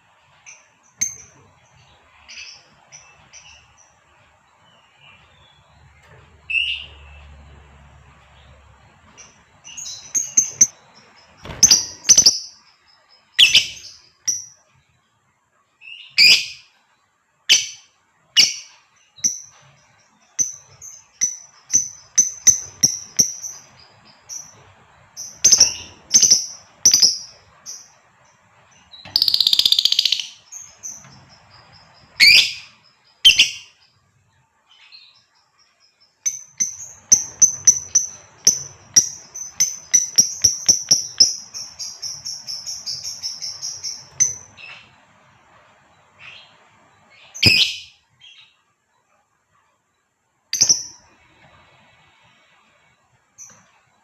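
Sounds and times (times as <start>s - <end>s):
lovebird chirping: 0.4s - 7.4s, 8.3s - 14.7s, 15.8s - 16.8s, 17.4s - 48.7s, 50.5s - 54.0s.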